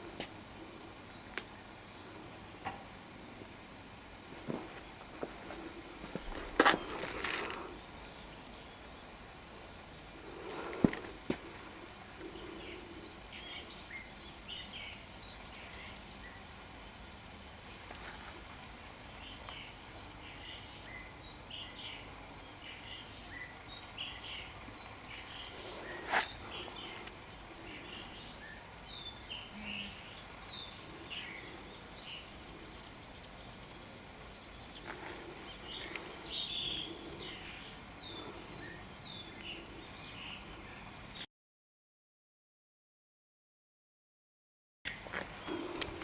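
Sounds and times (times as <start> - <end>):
steady background noise: 0.0 - 41.2
small birds chirping: 5.6 - 17.3, 17.9 - 41.3, 45.3 - 46.0.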